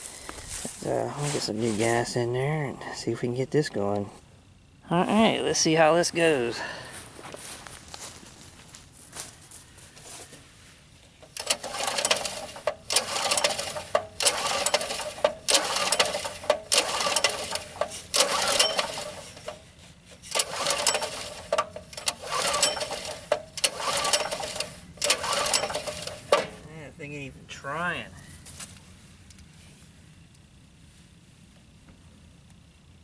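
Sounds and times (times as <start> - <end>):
small engine cranking: 11.2 - 19.6, 20.2 - 26.6.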